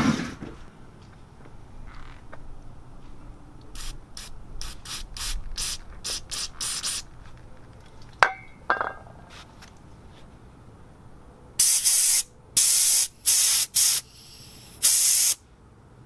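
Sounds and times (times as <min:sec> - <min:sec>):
air blow gun puffs: 0:11.6 - 0:15.4.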